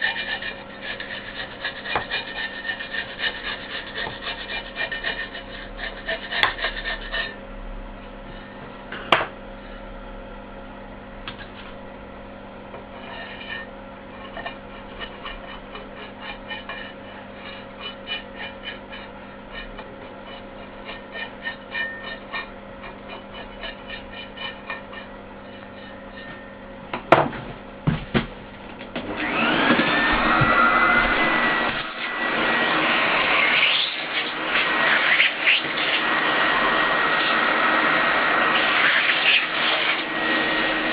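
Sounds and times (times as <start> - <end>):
scraping strokes: 0.0 - 7.4, 12.8 - 26.6, 29.2 - 40.9
steady machine hum: 0.0 - 38.8.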